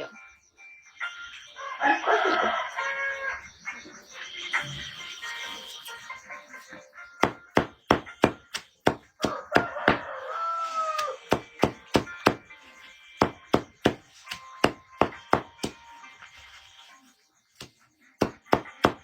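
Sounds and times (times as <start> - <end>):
blade chopping wood: 7.2 - 10.1, 10.9 - 12.5, 13.2 - 15.8, 17.6 - 19.0.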